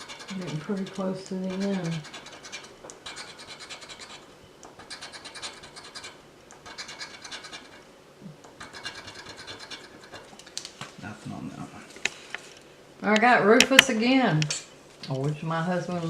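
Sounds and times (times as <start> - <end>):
scratching lottery ticket: 0.0 - 7.8.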